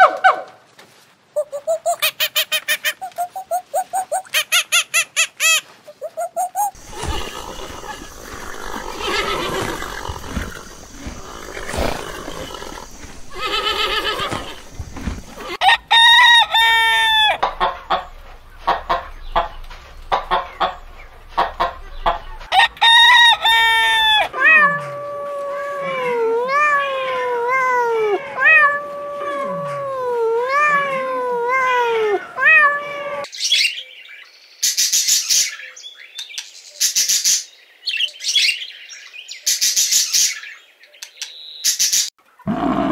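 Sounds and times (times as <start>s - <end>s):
hens clucking: 1.4s - 25.4s
rooster calling: 1.4s - 33.3s
horses cropping grass: 6.7s - 26.1s.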